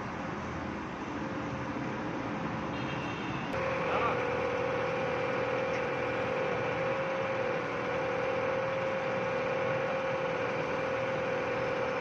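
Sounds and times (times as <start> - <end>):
excavator engine idling: 3.6 - 12.0
steady whining tone: 3.6 - 12.0.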